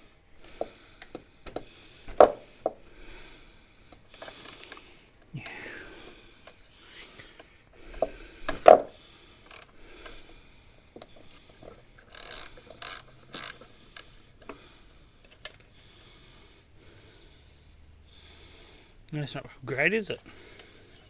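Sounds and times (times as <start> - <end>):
tools knocking and clicking: 0.6 - 2.8, 8.0 - 9.0.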